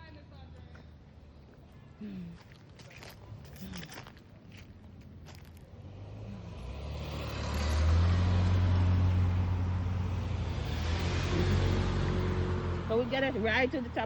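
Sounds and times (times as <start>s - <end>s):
car driving past: 5.8s - 14.0s.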